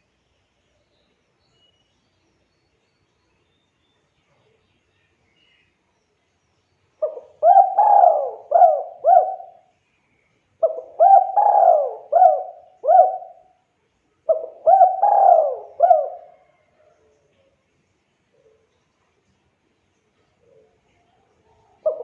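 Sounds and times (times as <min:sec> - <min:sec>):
dove cooing: 0:07.0 - 0:09.7, 0:10.6 - 0:13.5, 0:14.3 - 0:16.7, 0:21.7 - 0:22.0.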